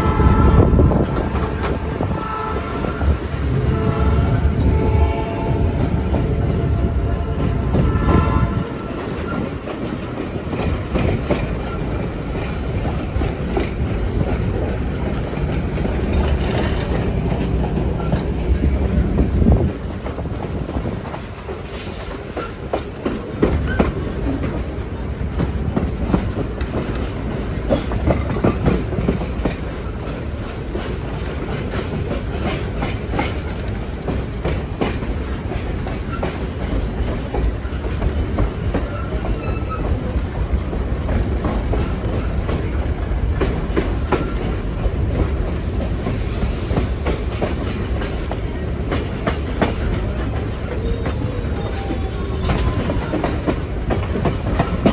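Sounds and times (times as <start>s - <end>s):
train rumbling: 0.0s - 54.9s
wheels clicking over rail joints: 5.6s - 54.9s.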